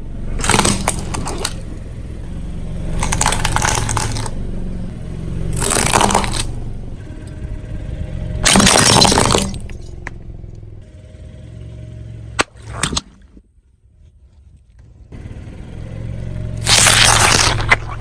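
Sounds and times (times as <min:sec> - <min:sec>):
car tyre crushing objects: 0:00.0 - 0:07.0, 0:08.4 - 0:10.2, 0:12.4 - 0:14.8, 0:16.6 - 0:18.0
car engine running: 0:00.0 - 0:18.0
sharp cracks: 0:00.4 - 0:01.7, 0:03.0 - 0:04.4, 0:05.5 - 0:06.8, 0:08.4 - 0:10.2, 0:12.4 - 0:13.4, 0:16.6 - 0:18.0.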